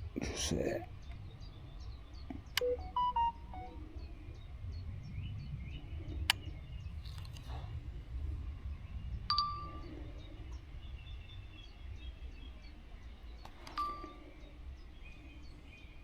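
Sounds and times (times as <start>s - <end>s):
low rumble of wind: 0.0s - 16.0s
small birds chirping: 0.0s - 16.0s
short beeps: 2.6s - 3.9s
long steady beep: 2.6s - 4.1s, 13.8s - 14.1s.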